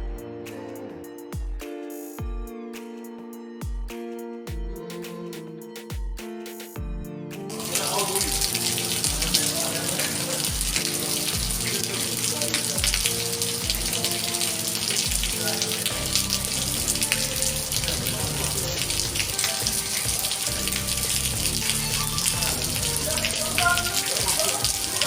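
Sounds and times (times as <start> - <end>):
background music with deep bass: 0.0 - 25.0
rain falling: 7.5 - 25.0
water running: 7.5 - 25.0.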